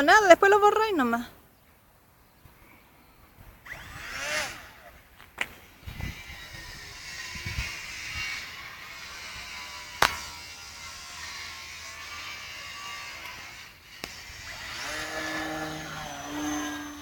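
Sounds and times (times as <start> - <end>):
model plane motor whining: 3.6 - 17.0.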